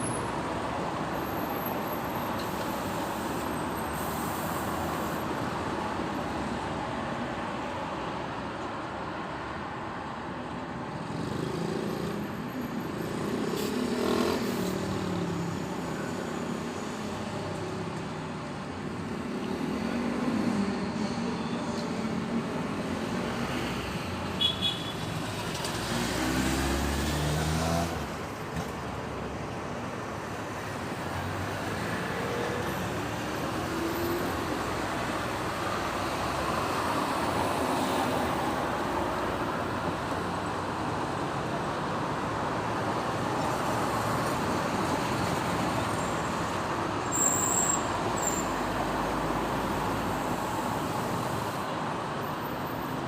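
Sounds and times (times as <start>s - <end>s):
road traffic hum: 0.0s - 53.0s
vehicle accelerating: 25.7s - 28.1s.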